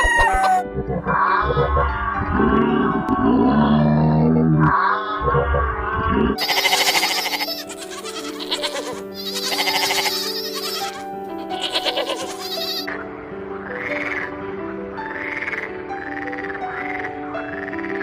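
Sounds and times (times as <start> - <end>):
background music: 0.0 - 18.0
farm animal bleating: 6.4 - 13.0.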